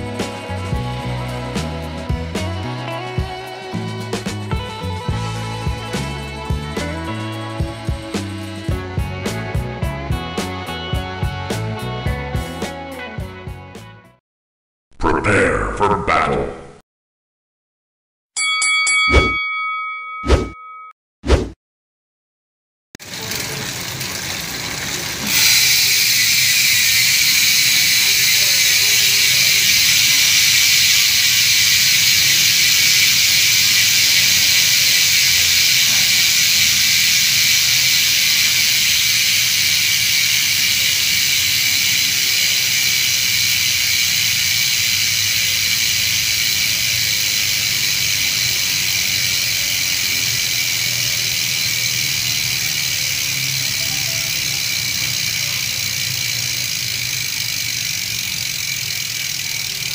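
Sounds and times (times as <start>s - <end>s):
bike freehub ratcheting buzz: 0.0s - 9.6s, 23.0s - 59.9s.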